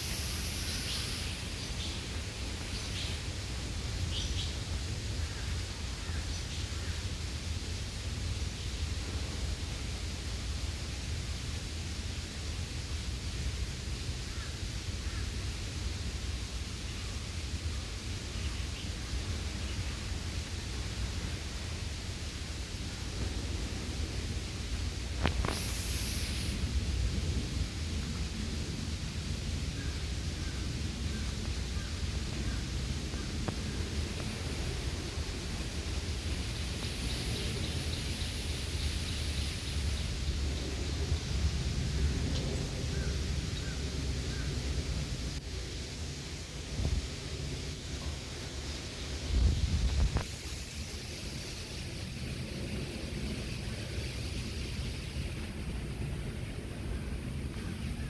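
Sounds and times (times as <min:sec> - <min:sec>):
low unsteady rumble: 0:00.0 - 0:58.0
outdoor rushing noise: 0:22.5 - 0:57.6.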